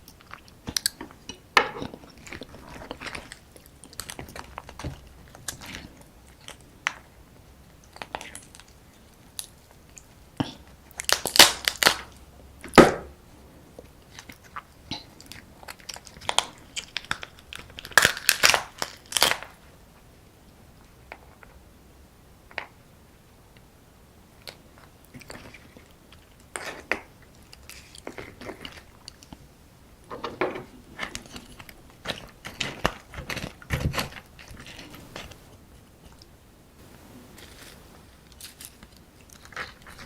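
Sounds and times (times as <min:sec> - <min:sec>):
chewing and crunching crab shell: 0:09.4 - 0:12.2, 0:14.0 - 0:19.7, 0:24.4 - 0:29.4, 0:36.9 - 0:40.0.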